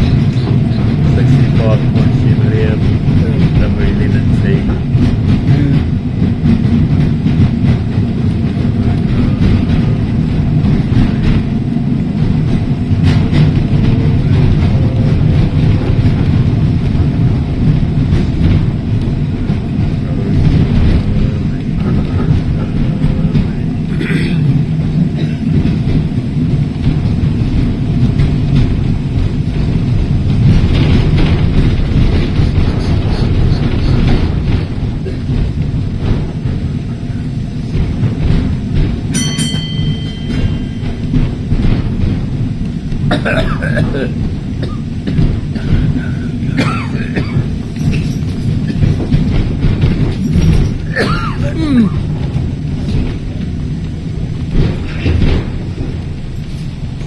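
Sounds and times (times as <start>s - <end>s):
tram wheels rumbling on rails: 0.0s - 57.0s.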